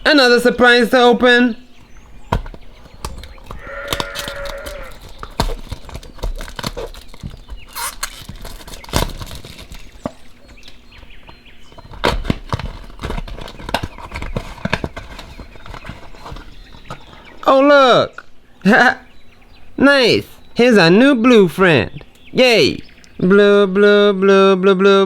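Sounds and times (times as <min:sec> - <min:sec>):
plastic packaging crinkling: 0:01.7 - 0:17.3.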